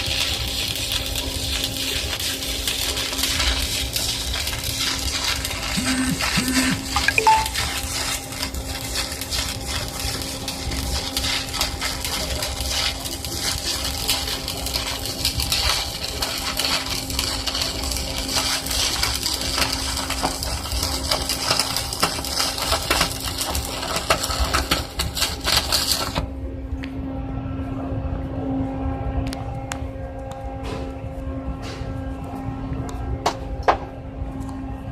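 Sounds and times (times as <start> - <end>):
welding arc crackling: 0.0 - 26.3
steady hum: 5.1 - 8.4.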